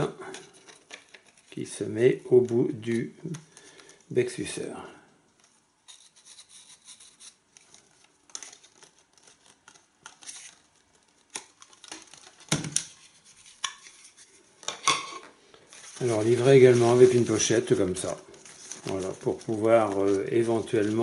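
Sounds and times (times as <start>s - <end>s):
plastic parts rustling and clicking: 0.3s - 1.8s, 5.4s - 14.9s.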